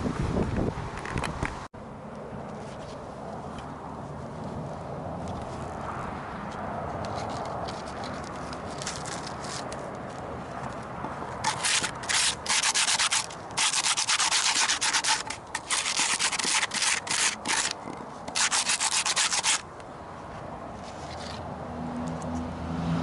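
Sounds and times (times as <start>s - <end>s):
sandpaper rubbing on wood: 11.4s - 19.6s.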